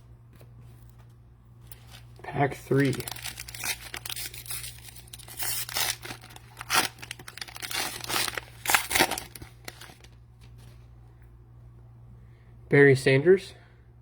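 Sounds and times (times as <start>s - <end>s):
cellophane wrapper tearing and crinkling: 1.7s - 10.2s.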